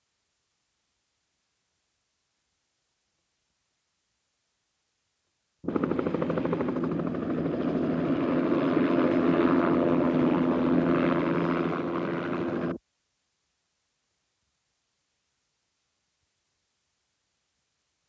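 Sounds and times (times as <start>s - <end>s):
helicopter engine hum: 5.6s - 12.8s
helicopter rotor chopping: 5.6s - 12.8s.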